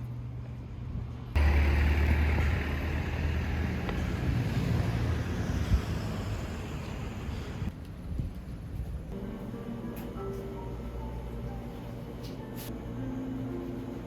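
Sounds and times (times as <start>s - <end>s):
road and wind noise: 0.2s - 9.2s
vehicle engine humming: 1.2s - 7.8s.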